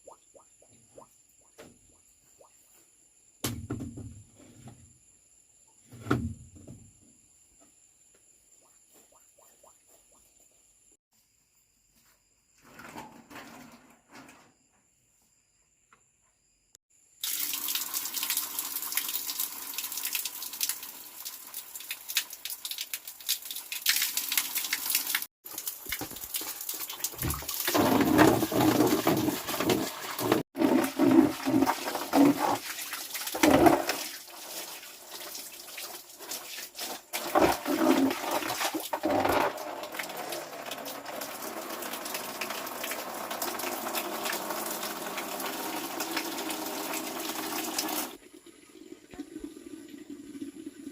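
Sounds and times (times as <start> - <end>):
running water splashing: 17.2 - 50.9.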